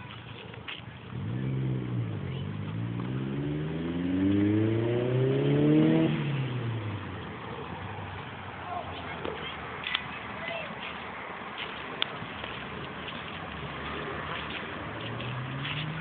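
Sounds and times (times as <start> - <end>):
vehicle engine accelerating past: 1.1 - 8.6, 13.6 - 16.0.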